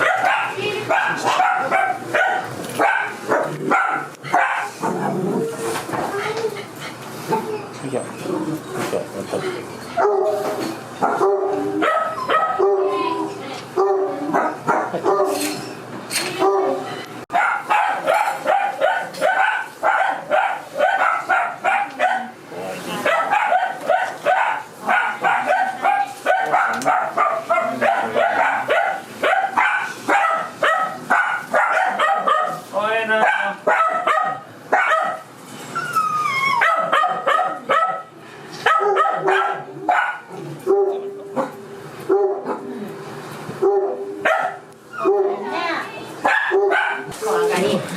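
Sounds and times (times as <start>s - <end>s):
dog barking: 0.0s - 5.1s, 10.0s - 13.1s, 13.8s - 15.4s, 16.4s - 22.4s, 23.0s - 35.3s, 36.6s - 42.7s, 43.6s - 45.5s, 46.2s - 47.2s
dog whining: 4.6s - 13.4s, 33.9s - 38.0s.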